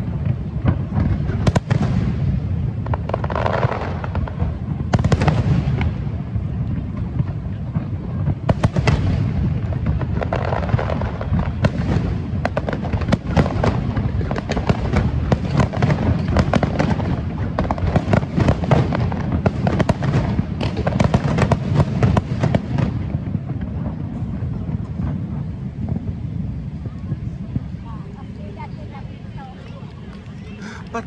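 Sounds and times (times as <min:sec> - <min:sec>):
fireworks bangs and crackles: 0:00.0 - 0:31.0.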